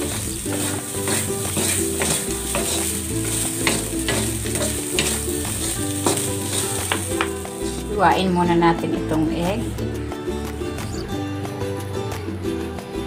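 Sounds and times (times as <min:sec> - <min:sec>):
spatulas scraping a wok: 0:00.0 - 0:07.9
rice sizzling: 0:00.0 - 0:08.4
background music: 0:00.0 - 0:13.0.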